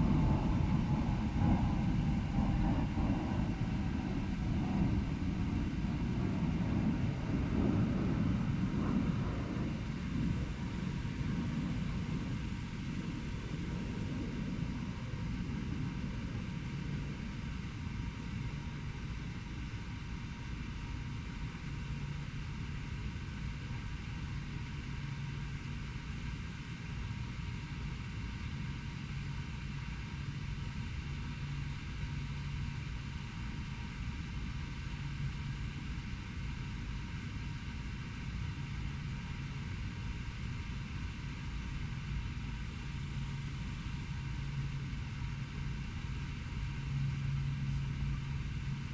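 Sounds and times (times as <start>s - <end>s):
low hum: 0.0s - 21.9s, 33.7s - 48.9s.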